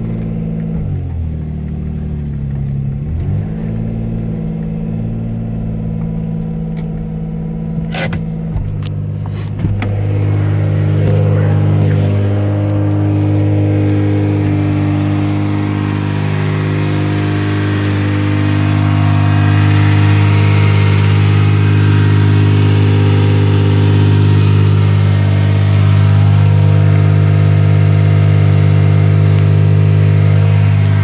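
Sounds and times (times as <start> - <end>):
vehicle engine idling: 0.0 - 31.0.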